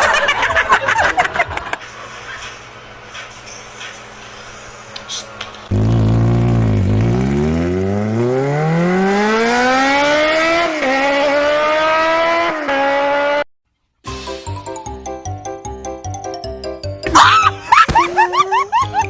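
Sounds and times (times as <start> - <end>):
car engine revving: 5.7 - 13.4.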